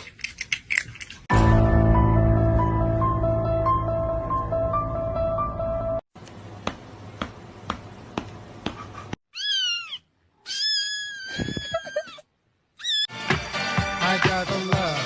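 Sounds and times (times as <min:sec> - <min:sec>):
cat meowing: 0:09.3 - 0:12.2, 0:12.8 - 0:13.1.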